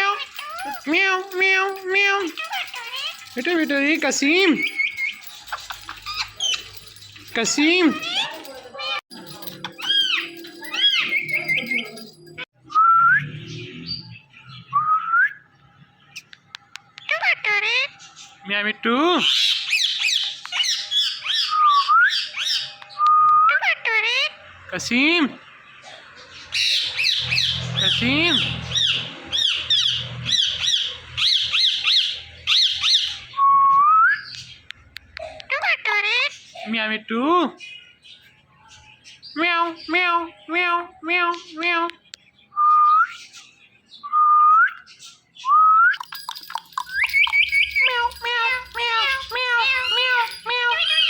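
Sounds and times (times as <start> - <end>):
parakeet chirping: 0.0 - 12.2, 16.1 - 25.3, 46.0 - 51.0
parrot chirps: 45.9 - 51.0.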